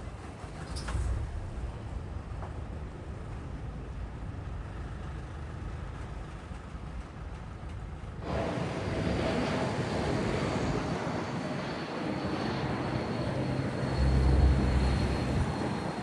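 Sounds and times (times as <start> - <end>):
aircraft engines passing: 8.2 - 16.0.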